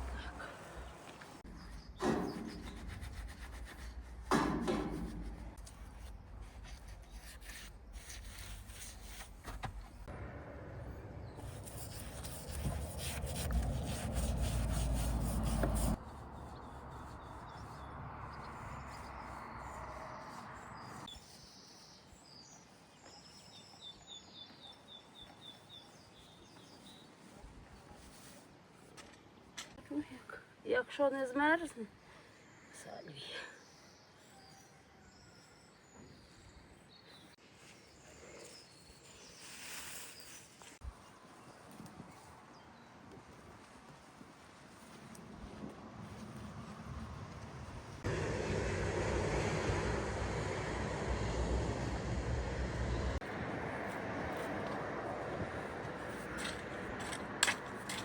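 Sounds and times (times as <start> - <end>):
rubbing and scraping by hand: 0.9 - 10.1, 11.4 - 21.4, 39.0 - 40.9
small birds chirping: 16.2 - 28.0.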